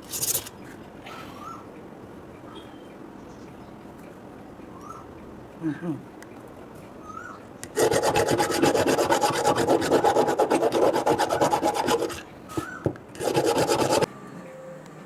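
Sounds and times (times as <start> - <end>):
hand tool scraping metal: 7.6 - 14.1.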